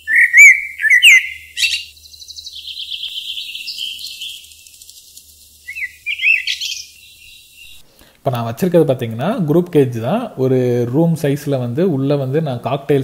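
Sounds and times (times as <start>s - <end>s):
bird twittering trill: 0.0s - 7.8s
small birds chirping: 0.0s - 7.8s.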